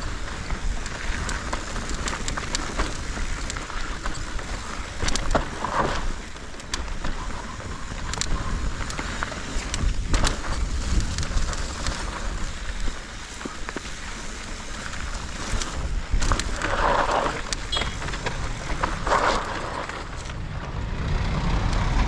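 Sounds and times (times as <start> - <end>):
mountain bike rattling over rough trail: 0.0 - 20.7.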